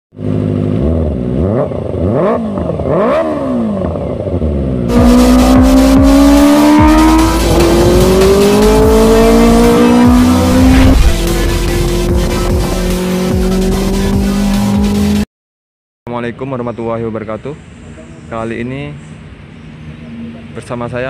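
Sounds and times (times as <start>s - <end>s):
motorcycle engine revving: 0.2s - 15.2s.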